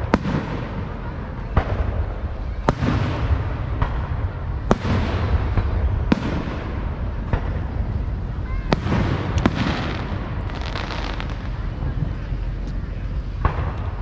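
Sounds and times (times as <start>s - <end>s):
fireworks banging: 0.0s - 14.0s
fireworks crackling: 0.0s - 14.0s
low rumble: 0.0s - 14.0s.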